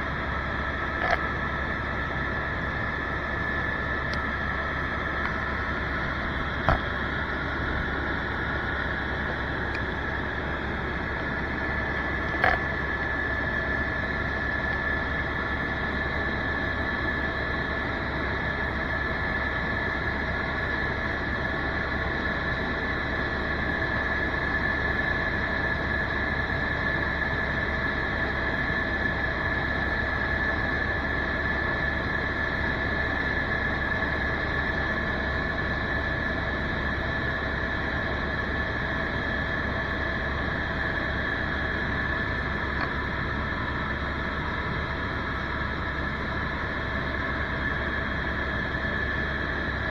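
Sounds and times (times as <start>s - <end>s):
high whine: 0.0s - 21.0s, 36.5s - 49.9s
helicopter rotor and engine noise: 0.0s - 49.9s.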